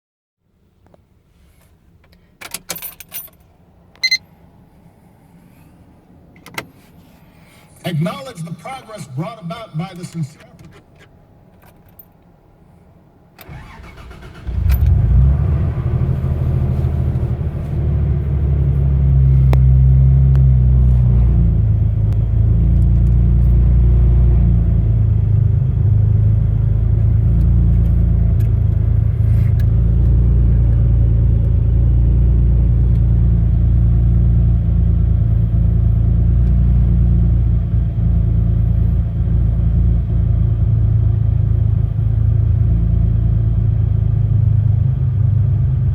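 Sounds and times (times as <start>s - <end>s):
car engine idling: 13.4s - 23.6s, 24.5s - 45.9s.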